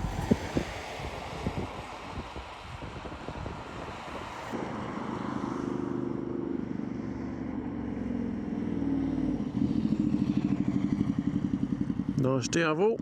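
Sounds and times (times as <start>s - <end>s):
motorcycle engine running: 0.0s - 1.6s, 5.3s - 13.0s
wind buffeting microphone: 0.0s - 5.6s.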